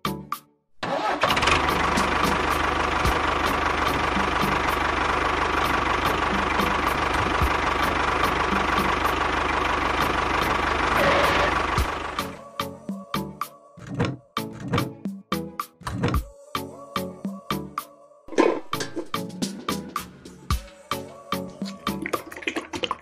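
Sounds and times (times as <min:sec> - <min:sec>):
toy tractor motor running: 0:10.4 - 0:11.9.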